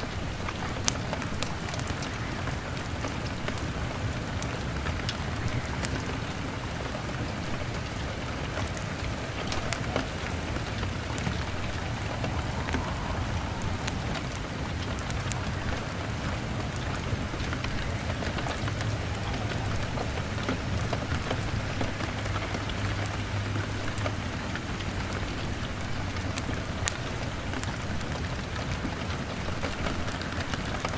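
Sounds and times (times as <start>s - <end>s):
rain on window glass: 0.0s - 30.9s
wood fire crackling: 0.0s - 30.9s
low rumble: 9.4s - 17.3s.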